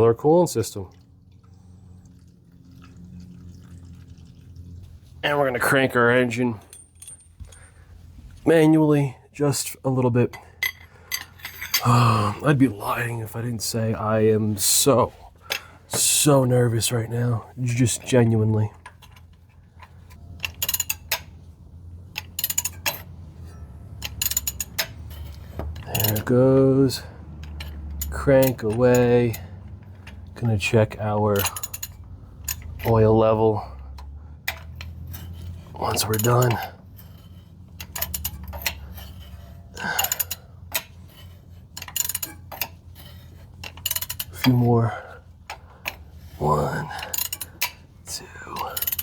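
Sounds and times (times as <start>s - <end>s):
ratchet wrench clicking: 19.8s - 21.4s, 22.1s - 23.1s, 23.9s - 26.3s, 26.9s - 30.0s, 31.4s - 33.0s, 37.8s - 44.6s, 47.0s - 47.9s, 48.6s - 49.0s.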